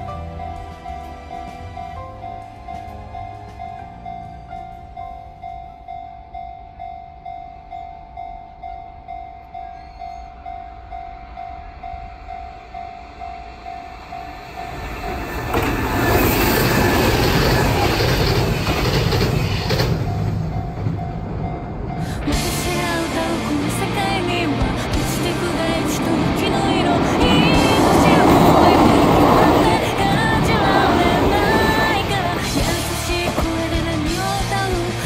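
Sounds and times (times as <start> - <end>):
train passing with deep rumble: 0.0 - 35.0
pulsing ringing tone: 2.3 - 19.3.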